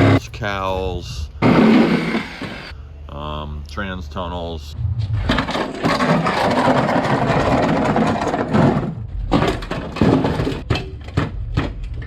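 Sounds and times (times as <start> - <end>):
metal cutting and scraping: 0.0 - 0.2, 1.4 - 2.7
metallic clanks and knocks: 5.2 - 12.0.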